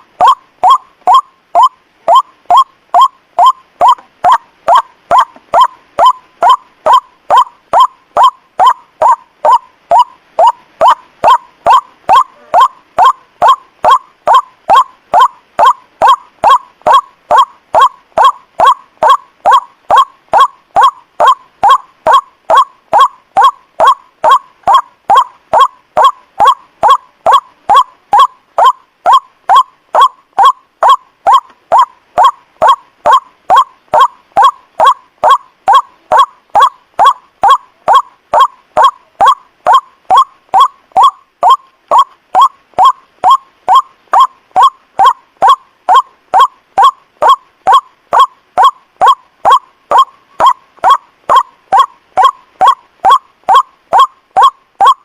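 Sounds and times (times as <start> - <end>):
waterhen calling: 0.0 - 55.0.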